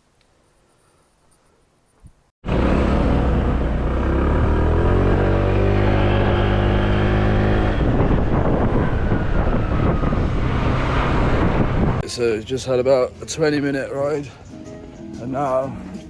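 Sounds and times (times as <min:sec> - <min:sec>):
motorbike engine pulling away: 0:02.5 - 0:12.0
steady rushing noise: 0:05.9 - 0:12.0.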